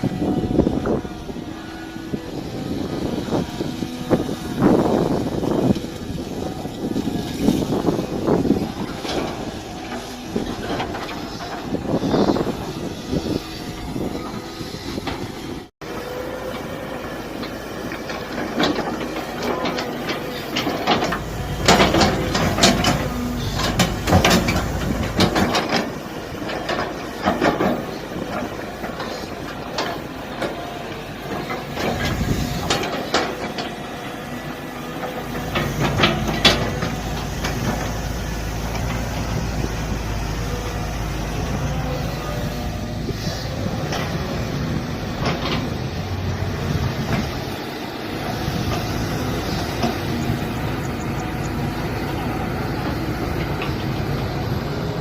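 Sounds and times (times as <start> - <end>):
excavator engine running: 0.0 - 55.0
metal clanks and knocks: 18.0 - 29.1.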